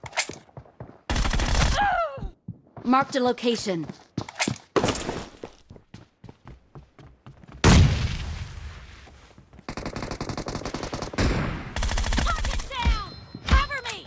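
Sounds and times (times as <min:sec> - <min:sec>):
rapid automatic gunfire: 0:01.1 - 0:01.7, 0:09.7 - 0:12.8.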